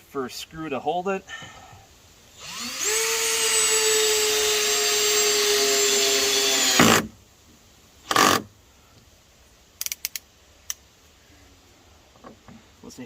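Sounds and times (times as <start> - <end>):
power drill whining: 2.4 - 7.1.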